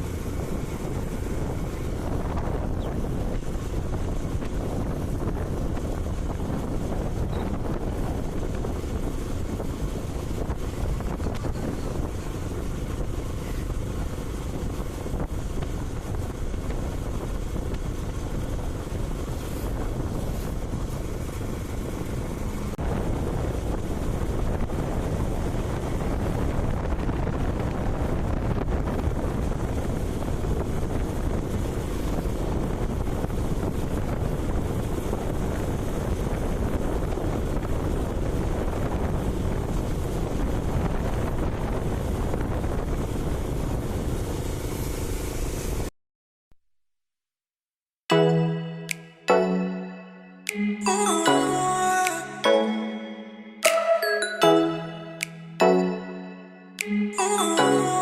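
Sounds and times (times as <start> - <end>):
motorcycle engine and road rumble: 0.0 - 45.9
wind rushing over microphone: 0.0 - 45.9.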